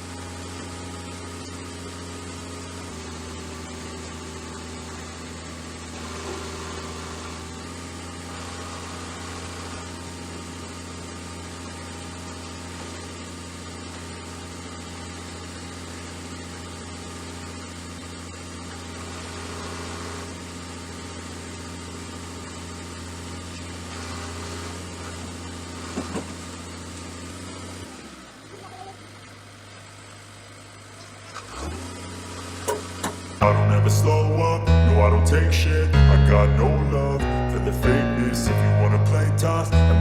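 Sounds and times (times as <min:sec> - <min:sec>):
diesel truck engine running: 0:00.0 - 0:18.6, 0:31.8 - 0:40.0.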